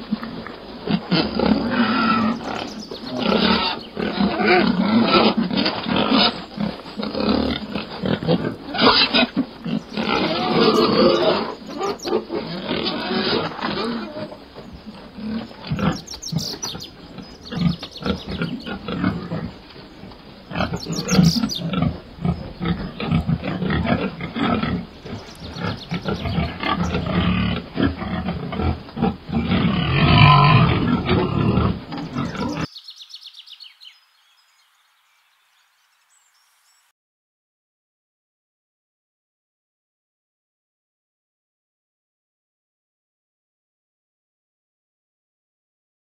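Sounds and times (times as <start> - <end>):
pigs grunting and snuffling: 0.0 - 32.7.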